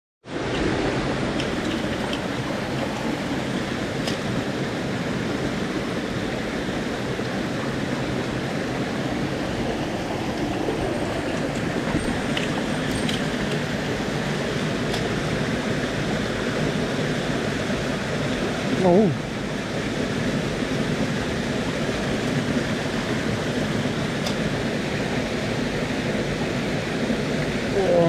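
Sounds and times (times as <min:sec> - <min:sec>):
stream rushing over rocks: 0:00.2 - 0:28.0.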